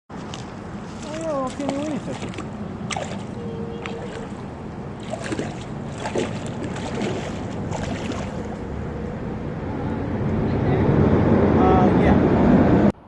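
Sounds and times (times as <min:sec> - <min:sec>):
small water splashes: 0:00.1 - 0:08.7.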